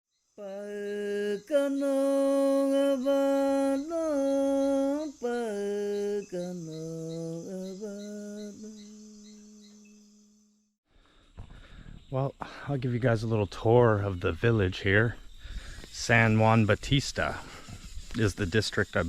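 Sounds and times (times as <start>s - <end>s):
person singing chant-like melody: 0.4s - 10.0s.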